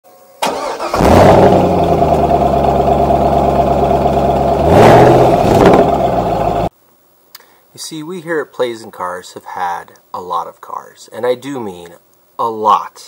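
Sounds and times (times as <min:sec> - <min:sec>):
car engine revving: 0:00.5 - 0:06.7.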